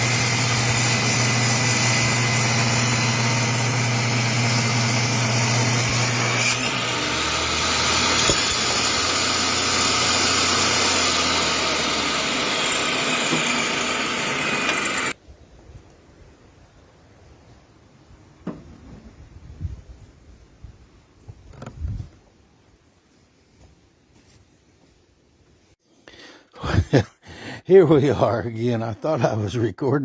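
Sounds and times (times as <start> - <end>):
table saw cutting wood: 0.0 - 15.2.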